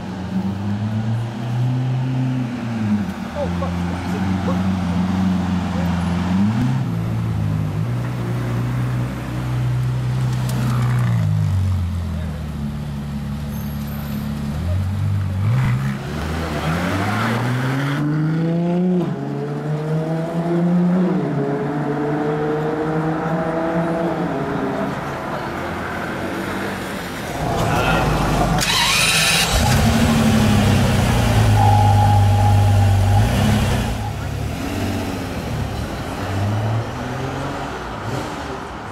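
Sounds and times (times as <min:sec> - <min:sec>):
car engine starting and idling: 0:27.3 - 0:34.4.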